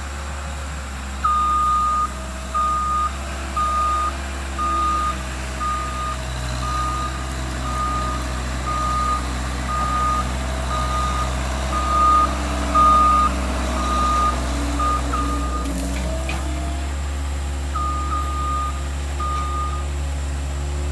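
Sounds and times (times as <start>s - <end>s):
engine humming: 0.0s - 20.9s
backup alarm beeping: 1.2s - 15.8s, 17.8s - 19.9s.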